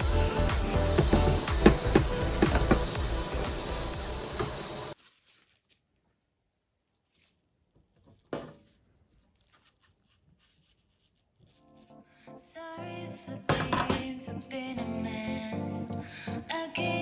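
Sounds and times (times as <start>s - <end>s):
loud hissing with clicks: 0.0s - 5.0s.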